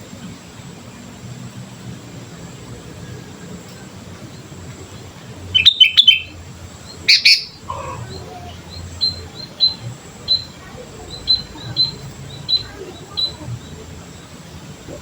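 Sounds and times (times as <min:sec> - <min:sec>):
faint bird chirps: 0:04.4 - 0:15.0
bird singing whistled notes: 0:05.5 - 0:13.4.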